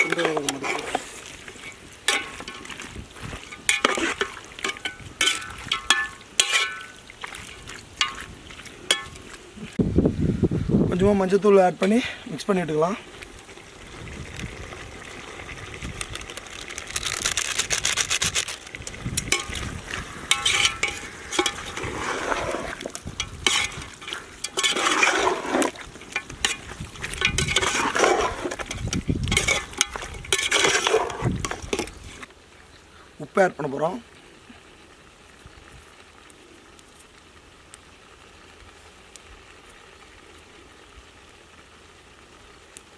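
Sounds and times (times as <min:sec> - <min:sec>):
spoon scraping a pan: 0:00.0 - 0:09.3, 0:19.2 - 0:32.3
light sizzle: 0:00.0 - 0:42.9.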